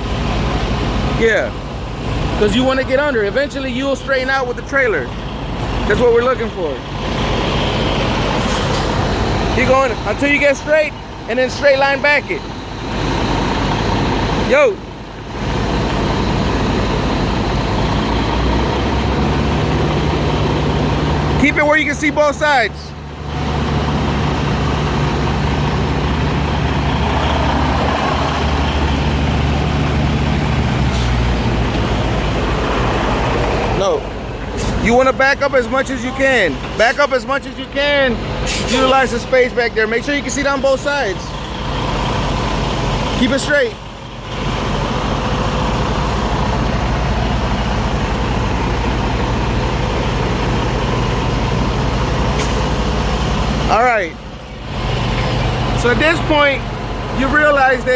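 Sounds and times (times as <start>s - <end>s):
truck diesel engine running: 0.0s - 57.9s
short air hiss: 38.4s - 38.8s.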